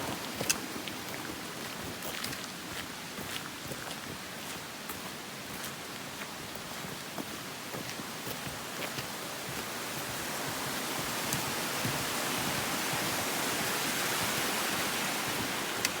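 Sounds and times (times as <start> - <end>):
waterfall rushing: 0.0 - 2.0, 8.5 - 16.0.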